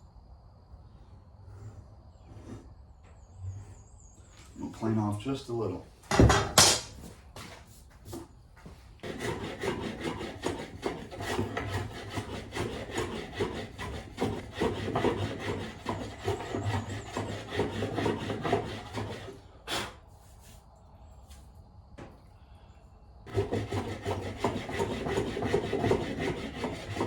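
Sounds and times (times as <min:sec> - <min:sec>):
hand plane scraping wood: 0:02.3 - 0:02.7, 0:09.0 - 0:20.6, 0:23.3 - 0:27.0
knock: 0:06.1 - 0:06.9.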